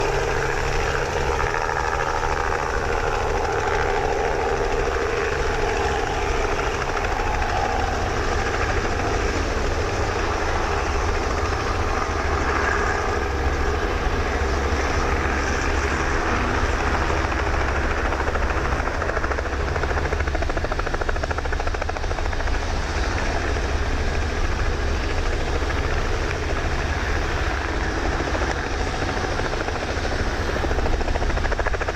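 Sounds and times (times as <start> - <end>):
droning tone: 0.0 - 18.7.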